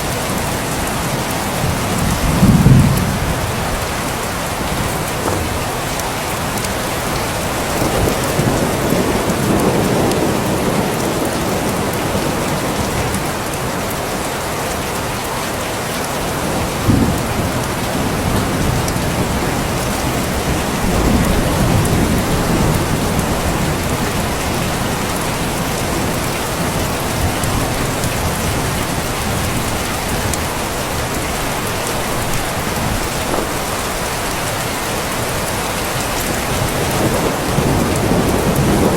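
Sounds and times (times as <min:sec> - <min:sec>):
heavy rain: 0:00.0 - 0:38.9
thunder clap: 0:01.6 - 0:13.4, 0:16.4 - 0:31.2, 0:36.0 - 0:38.9
thunder rolling: 0:01.6 - 0:13.4, 0:16.4 - 0:34.0, 0:35.8 - 0:38.9.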